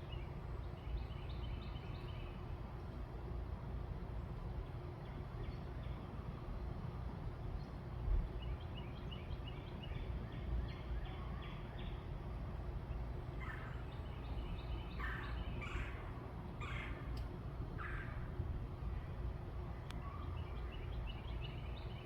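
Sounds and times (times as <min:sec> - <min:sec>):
birds chirping: 0:12.9 - 0:19.0, 0:19.9 - 0:22.0
harsh bird calls: 0:13.3 - 0:18.4.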